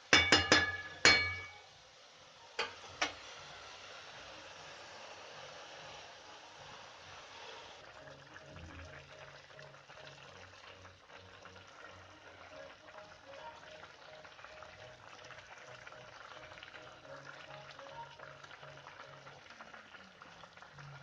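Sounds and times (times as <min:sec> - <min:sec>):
food sizzling in a pan: 0:00.0 - 0:21.0
faint music with a beat: 0:06.8 - 0:21.0.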